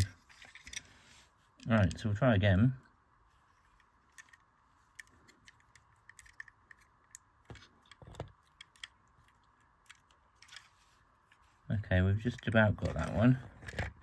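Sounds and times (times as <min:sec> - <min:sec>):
plastic pieces clicking: 0:03.8 - 0:10.7.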